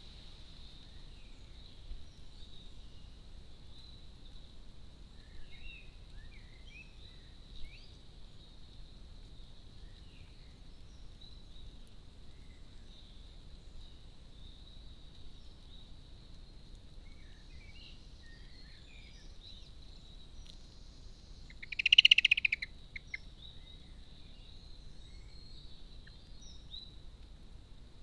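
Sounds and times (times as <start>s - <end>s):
faint bird chirps: 5.1s - 27.0s.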